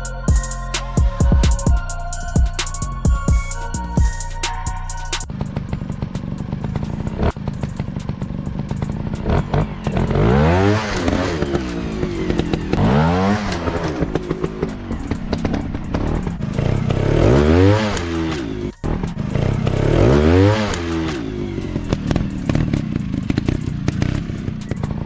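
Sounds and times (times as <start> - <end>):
dirt bike engine revving: 5.2 - 25.0.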